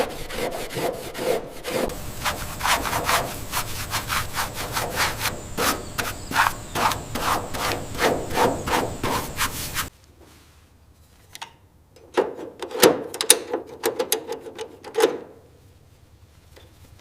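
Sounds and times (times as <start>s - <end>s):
rubbing: 0.0s - 10.5s.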